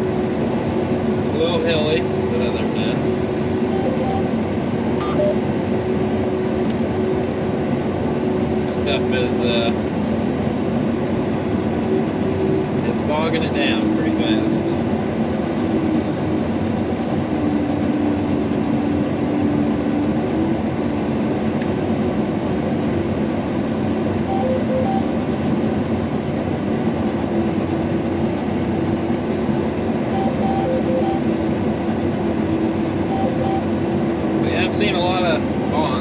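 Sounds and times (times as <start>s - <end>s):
combine engine and threshing drone: 0.0s - 36.0s
short beeps: 3.7s - 4.3s, 5.0s - 5.4s, 24.3s - 25.1s, 30.1s - 31.3s, 33.1s - 33.7s.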